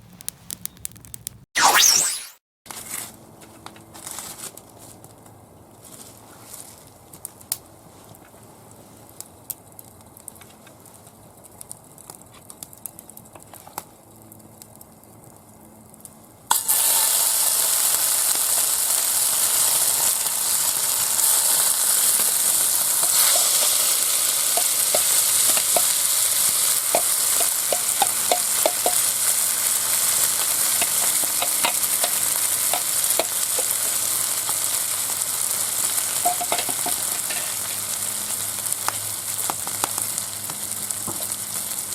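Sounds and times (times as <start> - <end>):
faint crackles: 0.0 - 2.4, 20.0 - 41.9
food sizzling in frying pan: 16.5 - 41.9
fat popping: 26.9 - 29.1, 30.8 - 34.0.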